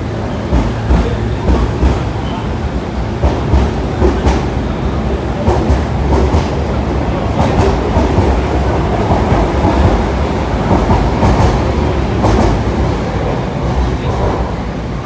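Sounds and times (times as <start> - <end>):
electric train rumbling: 0.0 - 15.0
wheels clacking over rail joints: 5.4 - 14.5.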